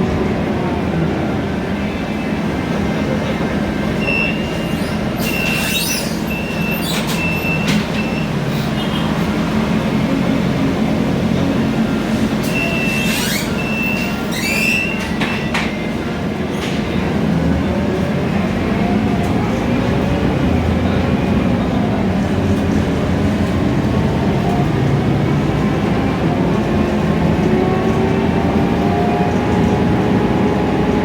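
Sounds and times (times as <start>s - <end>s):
bus engine and road rumble: 0.0s - 31.0s
short high squeals: 4.0s - 9.0s, 12.4s - 15.1s.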